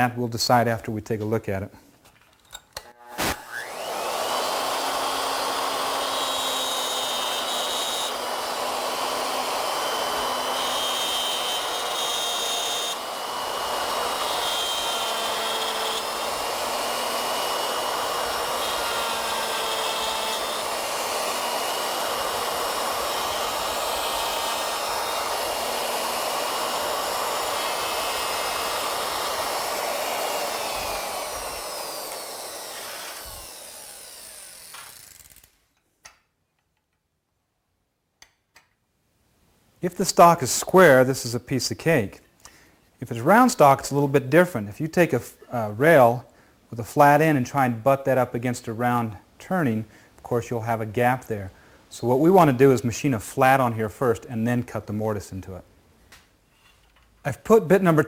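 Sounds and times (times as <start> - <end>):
wood router whining: 2.8 - 35.5.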